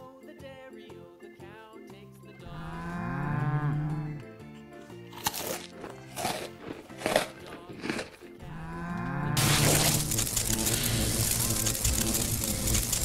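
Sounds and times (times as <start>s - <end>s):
soft background music: 0.0s - 13.0s
cow mooing: 2.5s - 4.2s, 8.4s - 9.9s
crunching: 5.1s - 13.0s.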